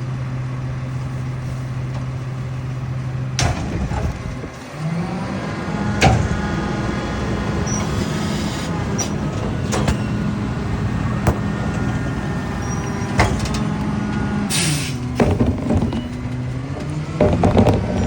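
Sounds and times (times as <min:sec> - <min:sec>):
garbage truck engine running: 0:00.0 - 0:18.0
metal clanks and knocks: 0:03.4 - 0:04.6, 0:12.9 - 0:18.0.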